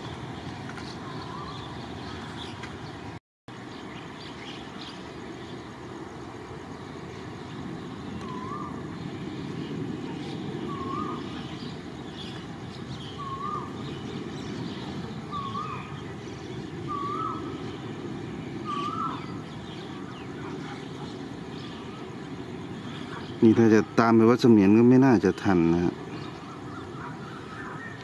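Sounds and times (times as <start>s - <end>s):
passing train rumble: 0.0s - 28.0s
bird calling wavering note: 1.0s - 2.3s, 8.2s - 20.4s, 22.9s - 28.0s.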